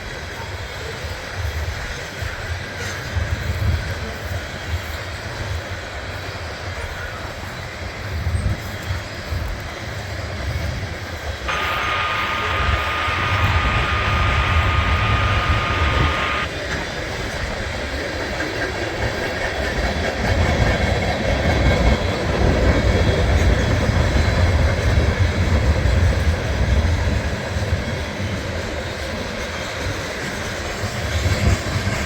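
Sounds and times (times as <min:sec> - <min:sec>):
steady high tone with hiss: 0:11.5 - 0:16.5.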